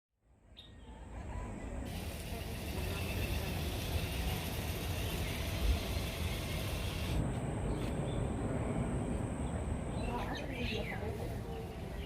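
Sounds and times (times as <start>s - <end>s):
hiss: 1.9s - 7.2s.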